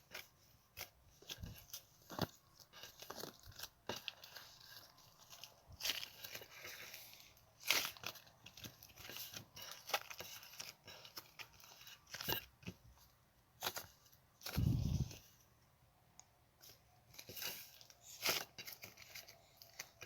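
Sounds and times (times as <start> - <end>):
material crackling and tearing: 0.0 - 12.7, 13.6 - 15.3.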